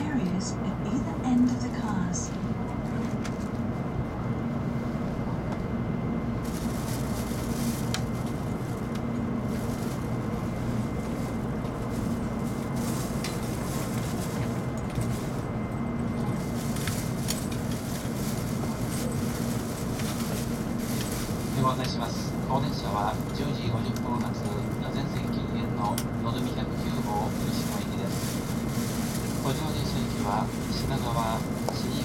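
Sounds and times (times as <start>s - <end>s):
low hum inside train car: 0.0s - 32.0s.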